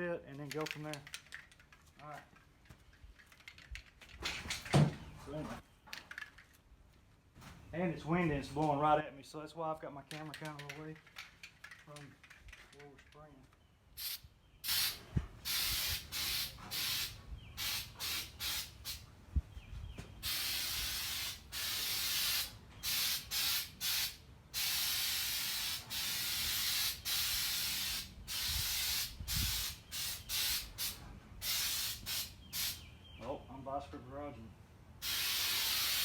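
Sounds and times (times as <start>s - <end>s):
aerosol can spraying: 14.0s - 19.0s, 20.2s - 32.8s, 35.0s - 36.0s.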